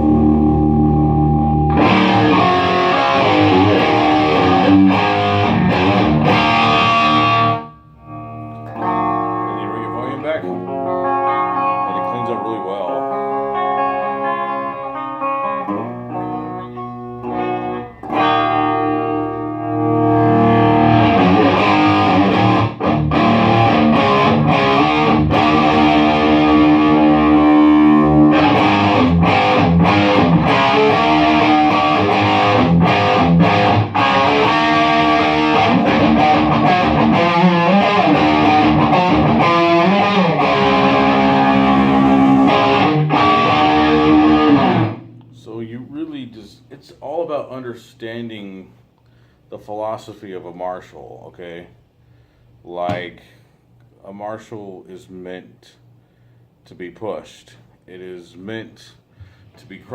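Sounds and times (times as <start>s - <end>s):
distorted electric guitar: 0.0s - 45.4s.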